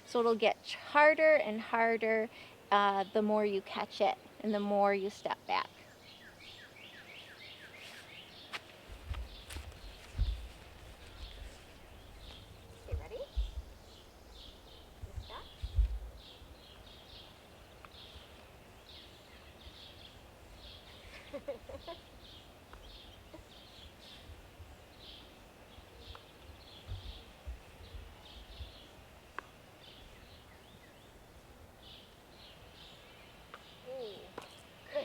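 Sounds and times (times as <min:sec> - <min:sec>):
bird chirping: 0:04.0 - 0:35.0
wind rumbling on microphone: 0:08.9 - 0:16.8, 0:26.7 - 0:29.1.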